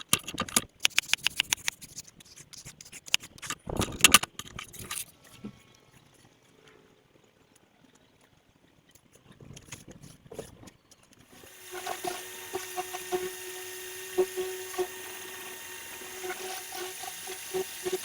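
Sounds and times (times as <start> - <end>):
pressure washer spraying: 11.3 - 18.0.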